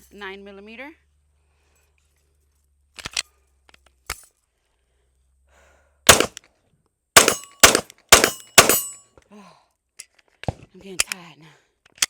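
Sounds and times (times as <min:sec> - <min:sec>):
pistol shots: 0:06.1 - 0:06.4, 0:07.2 - 0:09.0.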